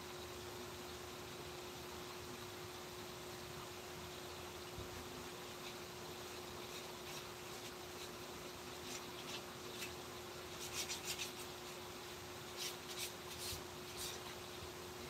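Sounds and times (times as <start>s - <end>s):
faint steady hum: 0.0s - 15.0s
soft rubbing strokes on wood: 5.5s - 14.5s.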